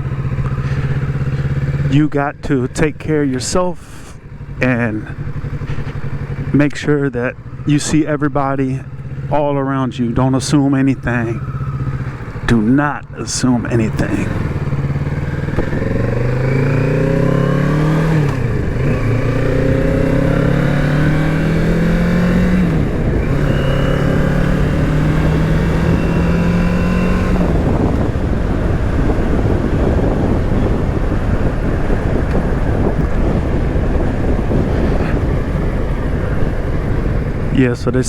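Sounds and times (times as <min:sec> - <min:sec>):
motorcycle engine accelerating: 0:00.0 - 0:38.0
wind rush: 0:12.0 - 0:38.0.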